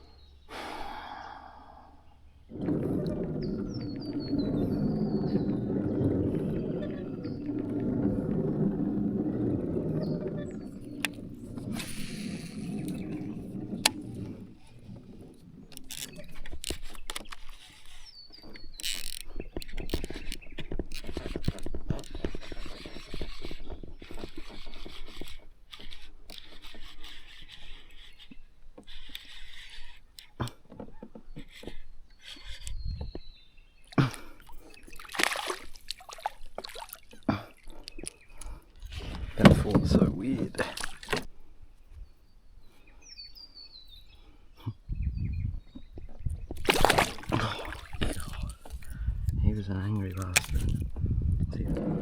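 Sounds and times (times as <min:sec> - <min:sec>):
knocks and scrapes on kayak hull: 0:02.4 - 0:33.5, 0:38.0 - 0:41.4, 0:45.4 - 0:52.0
water splashing: 0:34.4 - 0:37.8, 0:46.6 - 0:48.9.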